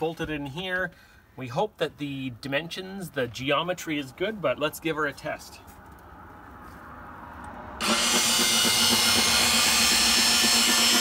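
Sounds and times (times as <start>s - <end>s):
electric motor whine: 7.8s - 11.0s.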